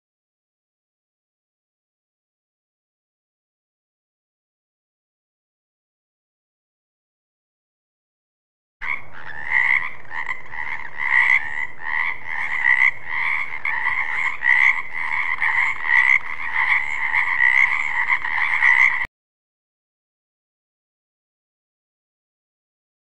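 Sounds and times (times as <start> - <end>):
frogs croaking in chorus: 8.8 - 19.1.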